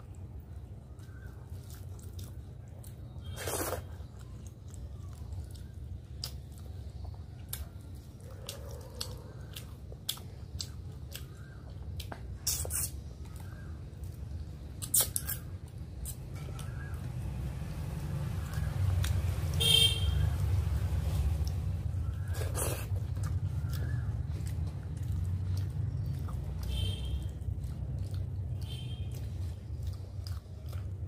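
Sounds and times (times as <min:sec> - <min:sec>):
person chewing: 0:00.0 - 0:19.6, 0:20.5 - 0:31.0
wet mouth clicks and smacks: 0:10.0 - 0:13.1, 0:14.1 - 0:16.7.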